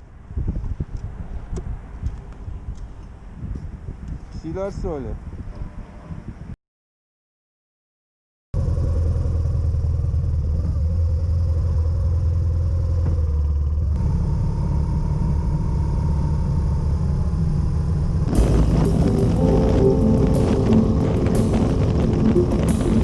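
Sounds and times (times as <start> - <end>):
wind noise: 0.0 - 6.6, 18.3 - 23.0
music: 18.3 - 23.0.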